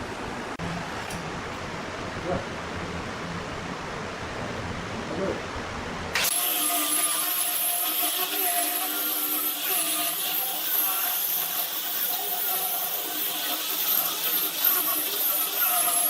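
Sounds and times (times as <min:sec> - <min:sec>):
power tool motor running: 0:06.2 - 0:16.0.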